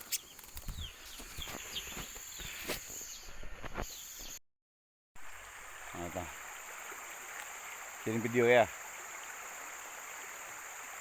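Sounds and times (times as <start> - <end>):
bird chirping: 0.0 - 4.4
insects droning: 5.2 - 11.0.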